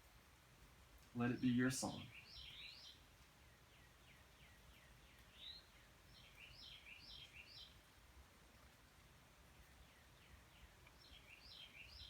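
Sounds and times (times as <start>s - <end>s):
faint birds chirping: 0.2s - 12.0s.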